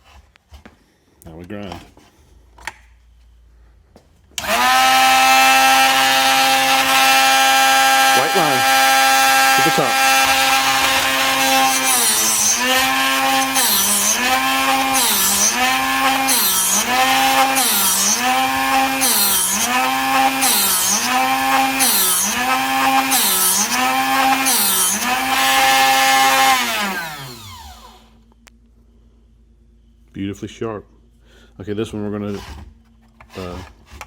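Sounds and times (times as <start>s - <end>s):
sharpener motor grinding drill bit: 4.4s - 28.1s.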